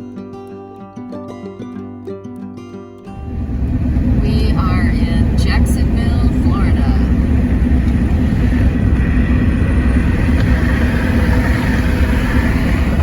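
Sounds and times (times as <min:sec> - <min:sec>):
vehicle interior road rumble: 0:03.2 - 0:13.0.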